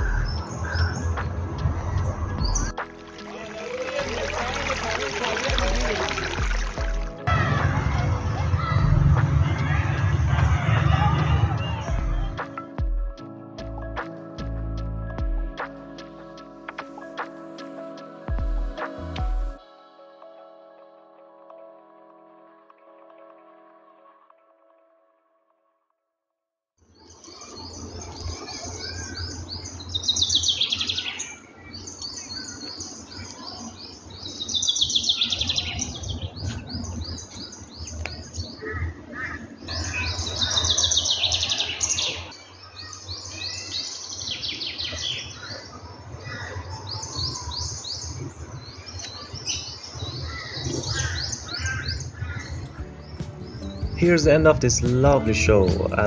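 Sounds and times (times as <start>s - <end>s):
birds chirping: 0.0s - 7.3s, 26.8s - 56.0s.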